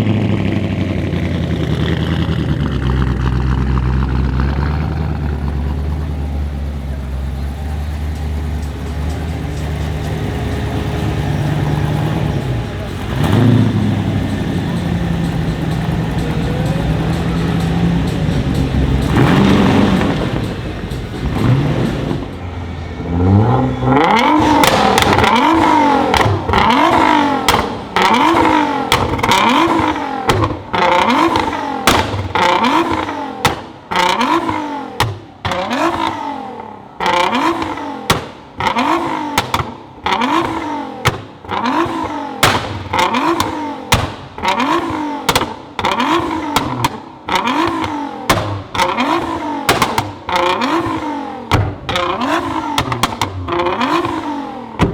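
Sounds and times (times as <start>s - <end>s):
sports car engine revving: 0.0s - 54.9s
exhaust pops and cracks: 24.1s - 54.9s.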